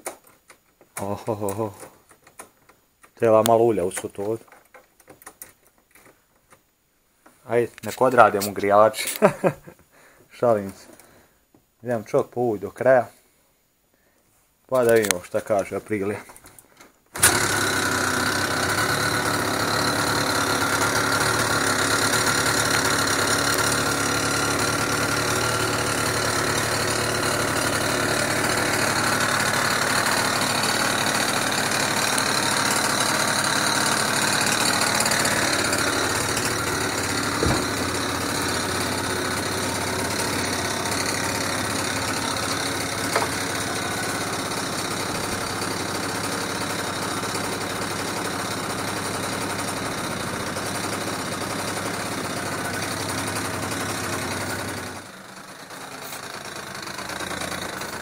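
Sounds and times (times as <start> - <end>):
scooter engine idling: 17.2 - 58.0
short knocks: 37.4 - 37.8.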